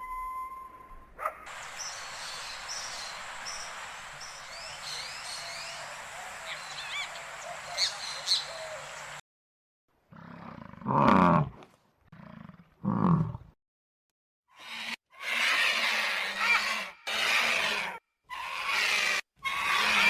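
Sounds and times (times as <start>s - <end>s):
sharp bird calls: 1.5s - 9.2s
small birds chirping: 1.5s - 9.2s
steady hiss: 1.5s - 9.2s.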